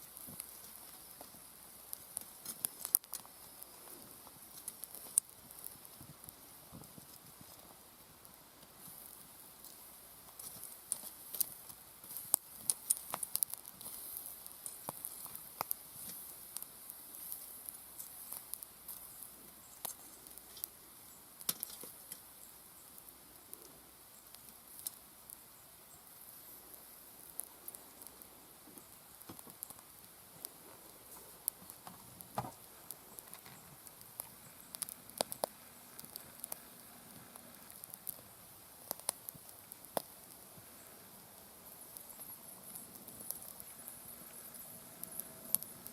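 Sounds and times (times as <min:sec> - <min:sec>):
steady high hiss: 0:00.0 - 0:45.9
wood fire crackling and popping: 0:00.0 - 0:45.9.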